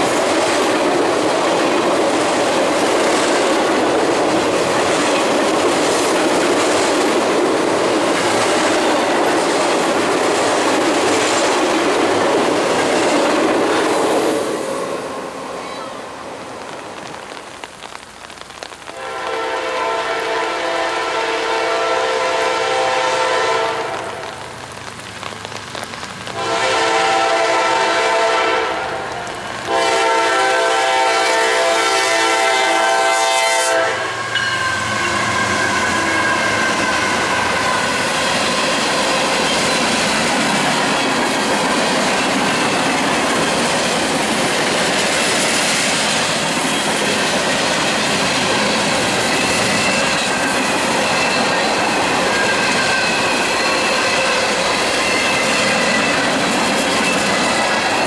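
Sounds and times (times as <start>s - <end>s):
train rumbling past: 0.0s - 17.4s, 19.0s - 58.0s
locomotive horn blasts: 19.0s - 24.3s, 26.4s - 29.1s, 29.7s - 37.8s.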